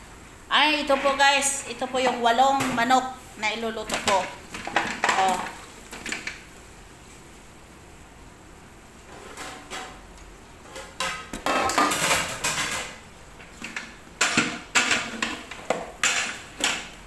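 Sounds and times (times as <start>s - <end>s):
utensil clattering in metal pot: 3.8s - 6.4s, 10.7s - 17.0s.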